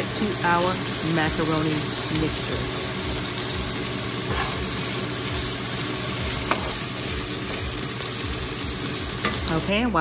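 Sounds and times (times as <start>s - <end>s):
vegetables sizzling in a skillet: 0.0s - 10.0s.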